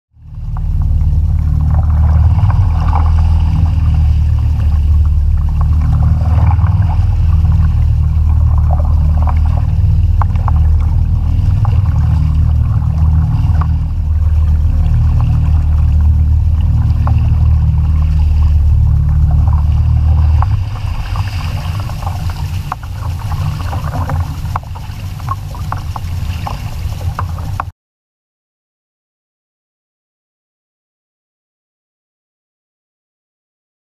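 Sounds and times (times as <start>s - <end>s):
water lapping against hull: 0.2s - 27.7s
wind rumble on microphone: 0.2s - 27.7s.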